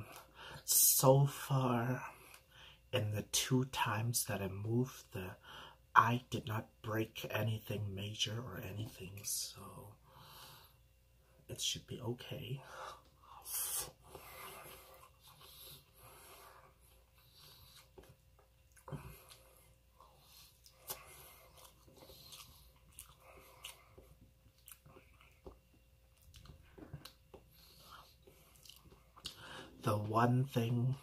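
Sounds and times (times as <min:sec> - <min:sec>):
person chewing food: 0:13.2 - 0:29.6.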